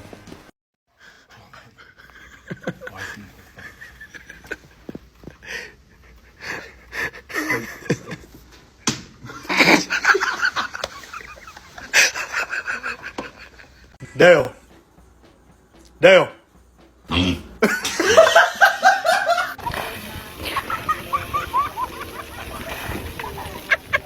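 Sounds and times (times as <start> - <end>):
person laughing: 1.8 - 5.4, 6.6 - 8.4, 9.3 - 14.2, 17.6 - 24.0.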